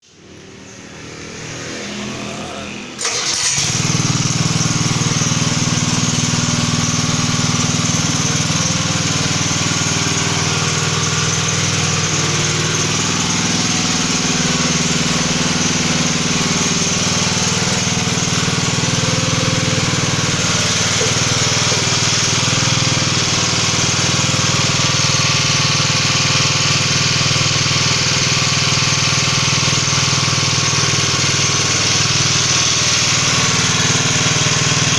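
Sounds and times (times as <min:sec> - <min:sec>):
hydraulic pump motor running: 0:03.0 - 0:34.9.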